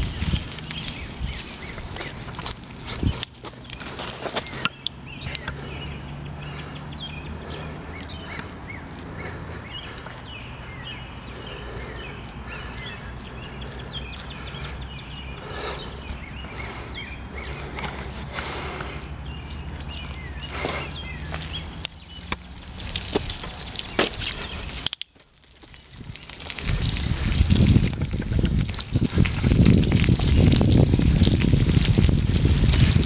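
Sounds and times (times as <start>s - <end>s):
birds chirping: 0.0s - 27.0s
sharp clicks: 4.6s - 5.6s
short high bird trill: 5.2s - 5.6s.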